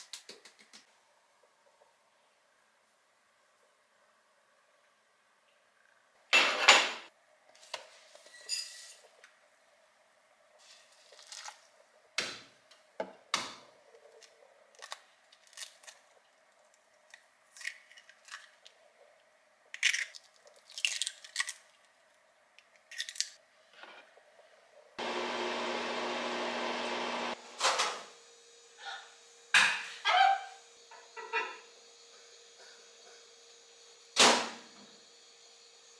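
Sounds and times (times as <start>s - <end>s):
steady machine hum: 25.0s - 29.6s.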